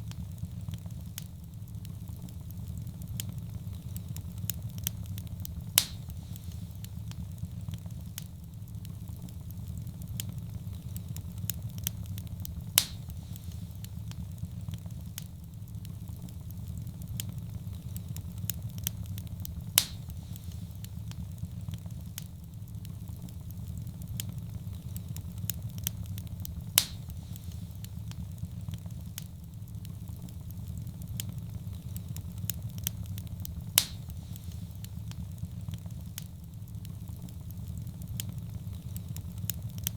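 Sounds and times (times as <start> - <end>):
wood fire crackling: 0.0 - 39.9
sharp fire pop: 5.6 - 7.2, 12.6 - 14.2, 19.6 - 21.2, 26.5 - 28.2, 33.5 - 35.2.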